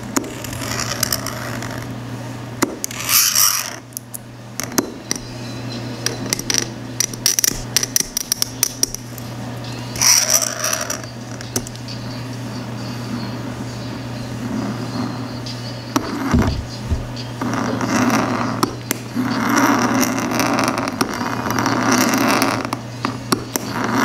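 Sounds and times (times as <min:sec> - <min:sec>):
low steady hum: 0:00.0 - 0:24.0
knife blade scraping plastic: 0:00.2 - 0:01.9, 0:02.9 - 0:03.8.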